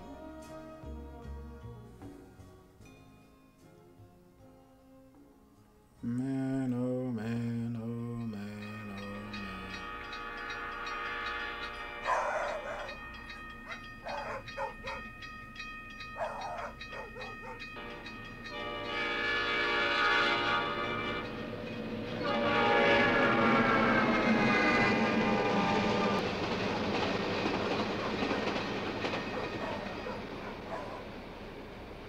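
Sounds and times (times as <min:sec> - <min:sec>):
train horn: 0:00.0 - 0:01.1, 0:09.3 - 0:15.1, 0:16.2 - 0:31.2
train rumbling past: 0:06.4 - 0:32.0
dogs barking: 0:12.0 - 0:15.2, 0:16.1 - 0:17.8, 0:27.8 - 0:31.2.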